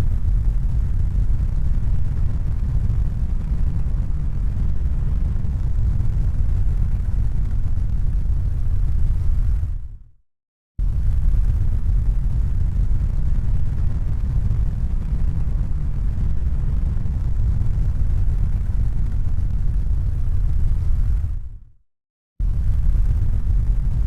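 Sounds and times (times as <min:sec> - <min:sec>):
deep rumbling noise: 0:10.8 - 0:21.6, 0:22.4 - 0:24.0.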